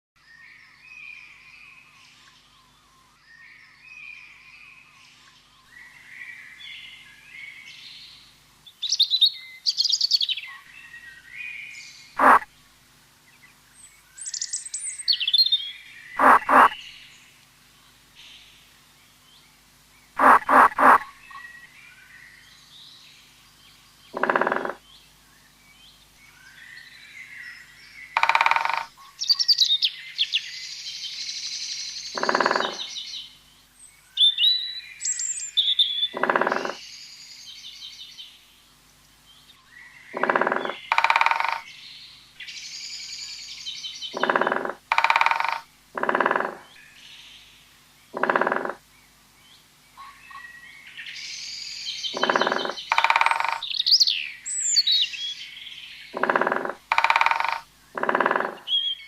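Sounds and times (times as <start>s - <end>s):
faint steady hum: 0.2s - 59.0s
bird chirping and trilling: 12.2s - 12.5s, 16.2s - 17.0s, 20.2s - 21.6s, 28.2s - 30.5s, 32.0s - 33.1s, 34.2s - 36.8s, 40.1s - 41.7s, 43.8s - 46.8s, 51.3s - 59.0s
low nasal honk-like call: 12.2s - 12.5s, 16.2s - 16.8s, 20.2s - 21.1s.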